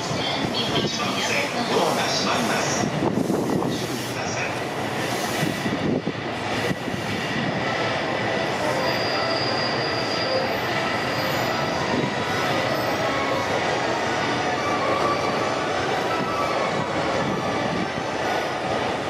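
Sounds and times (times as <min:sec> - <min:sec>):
train rumbling: 0:00.0 - 0:19.0
high brake squeal: 0:08.5 - 0:17.8.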